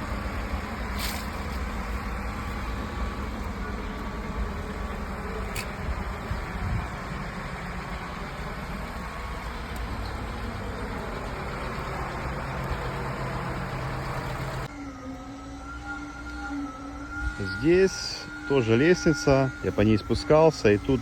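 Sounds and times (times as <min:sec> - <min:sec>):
vehicle engine running: 0:00.0 - 0:14.7, 0:18.8 - 0:21.0
steady humming tone: 0:00.0 - 0:21.0
wind on microphone: 0:05.4 - 0:07.2.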